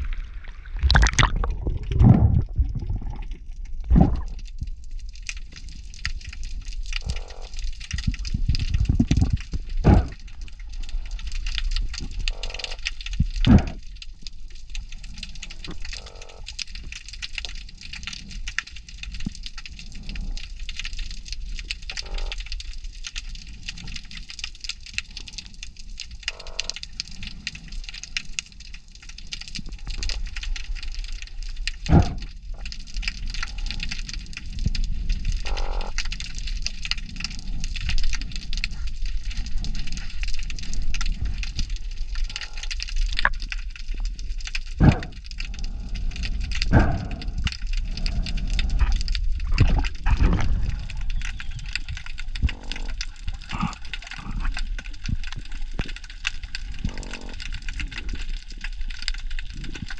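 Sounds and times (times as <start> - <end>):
buzzy underwater croaks: 0.0 - 59.9
crackling hiss: 0.0 - 59.9.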